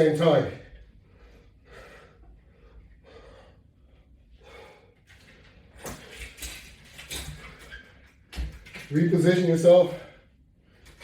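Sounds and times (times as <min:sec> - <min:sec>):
man breathing hard: 0:00.9 - 0:05.4.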